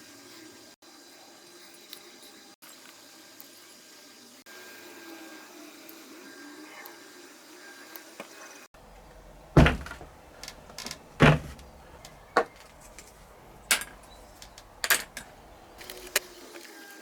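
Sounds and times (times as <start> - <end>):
heavy thumps: 8.8 - 16.2
sharp knocks: 8.9 - 15.9.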